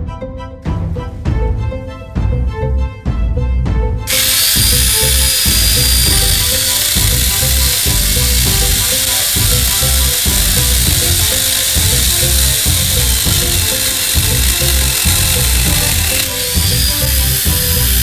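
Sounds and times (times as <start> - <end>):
background music with steady beat: 0.0 - 18.0
angle grinder chainsaw cutting wood: 4.1 - 18.0.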